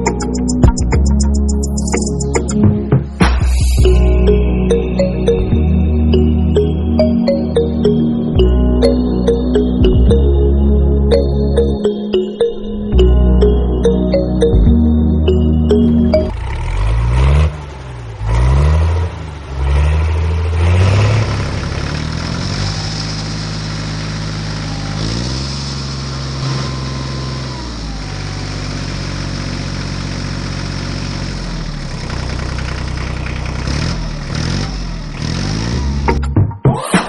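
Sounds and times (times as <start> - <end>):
engine revving: 16.2 - 37.0.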